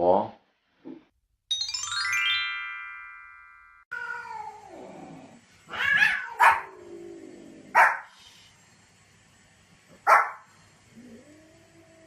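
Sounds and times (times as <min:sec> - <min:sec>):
dog barking: 0:06.0 - 0:06.7, 0:07.7 - 0:08.1, 0:10.0 - 0:10.5.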